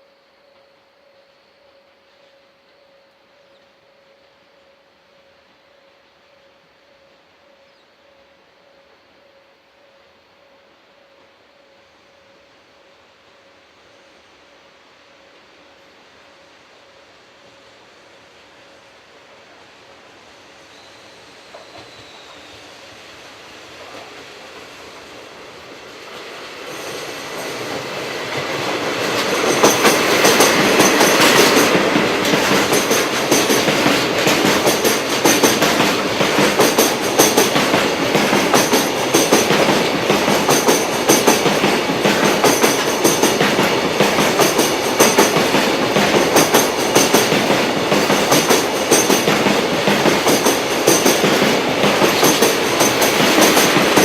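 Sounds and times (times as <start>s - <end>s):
freight train passing: 0.0s - 54.0s
wagon wheels clacking on rail joints: 26.2s - 54.0s.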